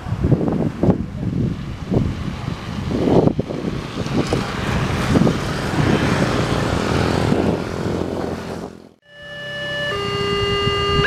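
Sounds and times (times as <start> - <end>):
distant passing train rumble: 0.0 - 9.0
wind buffeting microphone: 0.0 - 9.0, 9.6 - 11.0.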